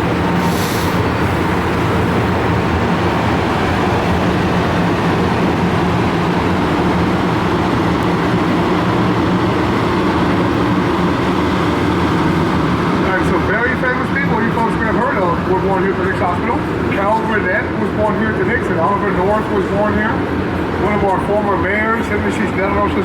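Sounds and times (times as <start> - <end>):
boat motor humming: 0.0 - 18.0.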